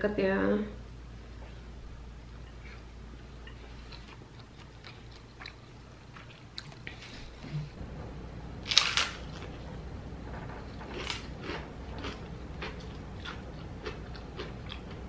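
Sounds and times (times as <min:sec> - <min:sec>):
chewing with mouth clicks: 0:02.4 - 0:07.5, 0:10.9 - 0:15.0.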